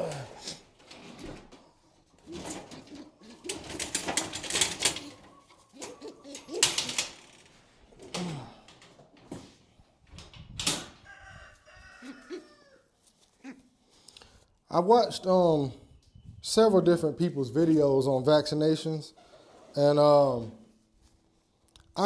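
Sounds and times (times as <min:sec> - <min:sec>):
rustling and clattering: 0:00.0 - 0:11.1
chickens clucking: 0:01.6 - 0:06.8, 0:19.1 - 0:19.8
rooster crowing: 0:11.0 - 0:12.9.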